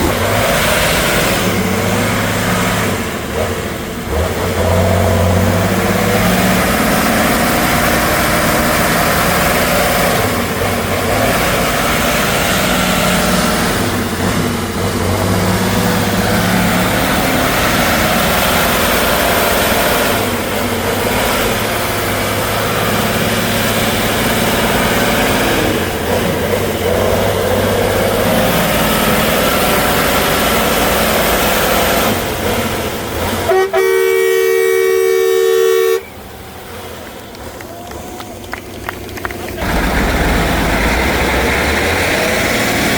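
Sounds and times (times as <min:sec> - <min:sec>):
truck engine running loud: 0:00.0 - 0:42.9
two-tone horn: 0:33.4 - 0:36.2.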